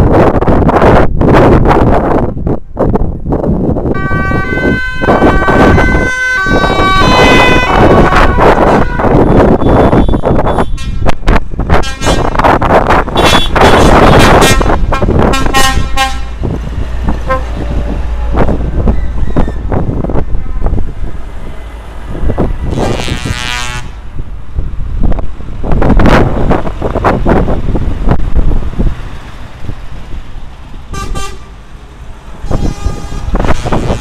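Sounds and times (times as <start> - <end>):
low rumble of engines and traffic: 0.0 - 34.0
truck horns honking: 3.9 - 19.8, 22.3 - 24.2, 30.8 - 34.0.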